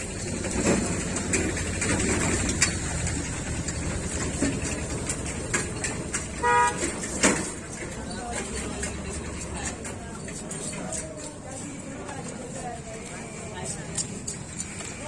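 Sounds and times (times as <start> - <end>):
busy street traffic: 0.0 - 15.0
vehicle horn toot: 6.4 - 7.0.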